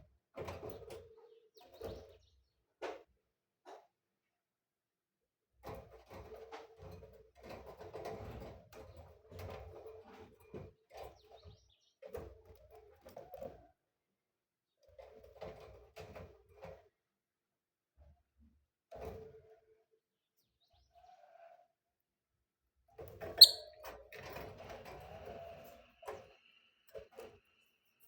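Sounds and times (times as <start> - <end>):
lovebirds chattering and chirping: 23.4 - 23.6.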